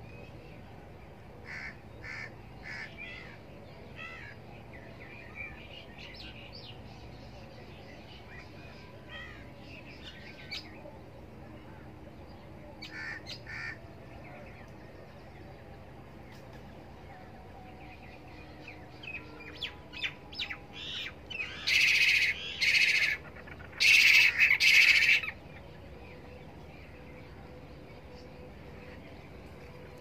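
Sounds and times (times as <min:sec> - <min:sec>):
birds chirping: 0:00.0 - 0:30.0
loud harsh bird calls: 0:01.4 - 0:03.4, 0:12.9 - 0:13.8, 0:20.8 - 0:25.4.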